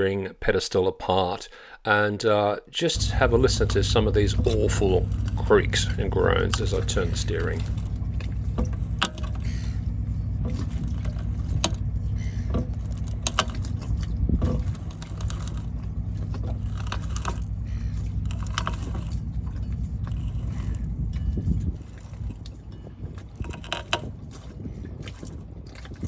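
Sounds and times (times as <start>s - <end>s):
steady low hum: 2.9s - 25.9s
steering gear creaking and groaning: 3.0s - 26.0s.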